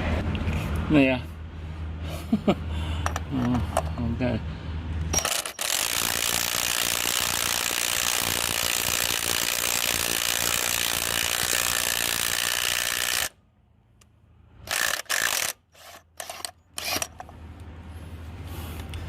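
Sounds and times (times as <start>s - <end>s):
ratchet tool clicking: 5.1s - 13.3s, 14.7s - 17.3s.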